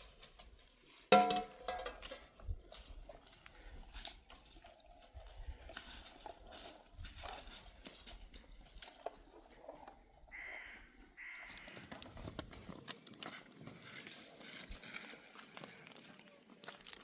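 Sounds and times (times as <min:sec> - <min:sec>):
bird cawing: 0:10.3 - 0:12.1.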